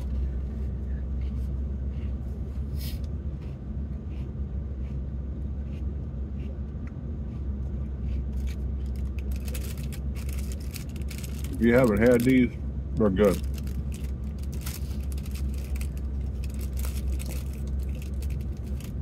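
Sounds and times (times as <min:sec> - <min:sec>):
car engine idling: 0:00.0 - 0:19.0
chewing crunchy cookies: 0:07.3 - 0:12.3, 0:13.2 - 0:19.0.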